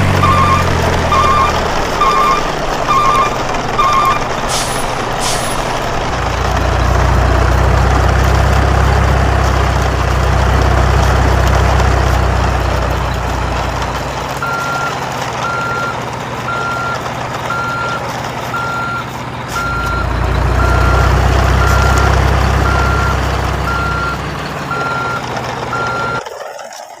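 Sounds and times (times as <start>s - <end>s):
truck reversing alarm beeping: 0.0s - 7.7s, 14.3s - 26.3s
diesel engine rumble: 0.0s - 26.6s.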